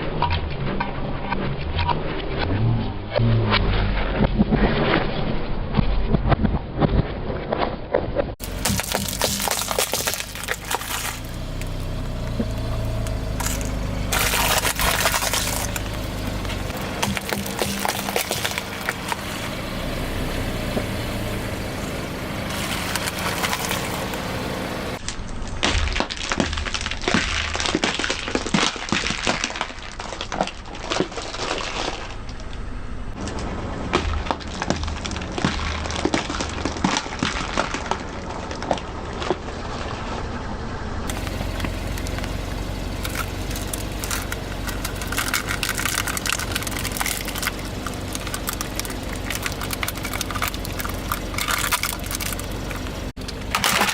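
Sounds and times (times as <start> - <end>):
low steady rumble: 8.3 - 53.9
tyre crushing brittle objects: 8.4 - 19.8, 22.5 - 24.3, 25.0 - 40.0, 41.1 - 53.9.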